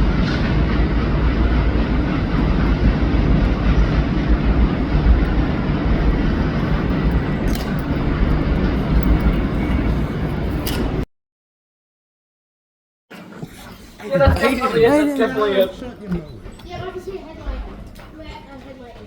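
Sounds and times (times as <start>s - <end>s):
vehicle rumble: 0.0s - 11.0s.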